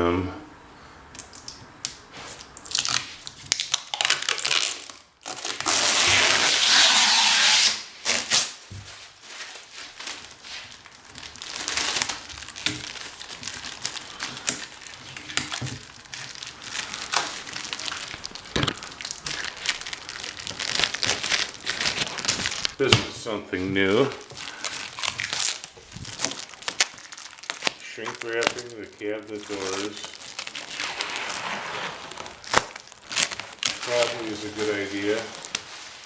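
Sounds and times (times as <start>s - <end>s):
plastic film crinkling: 2.1s - 36.0s
rasp of plastic film: 3.9s - 9.7s, 24.1s - 36.0s.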